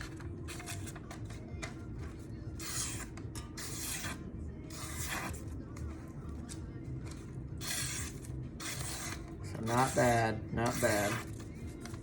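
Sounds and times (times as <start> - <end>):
knife slicing paper: 2.6 - 5.4, 7.6 - 11.5.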